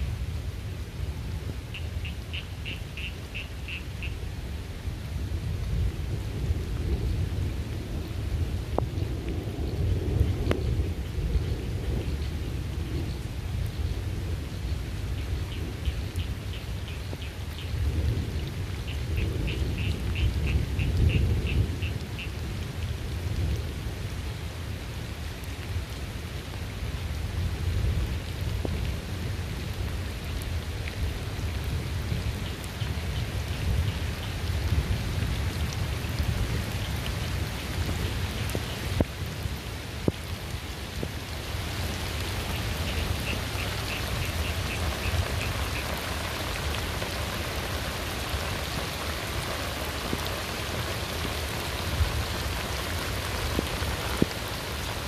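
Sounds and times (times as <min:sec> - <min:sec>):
rain pattering: 0:00.0 - 0:55.0
low rumble of thunder: 0:04.3 - 0:55.0.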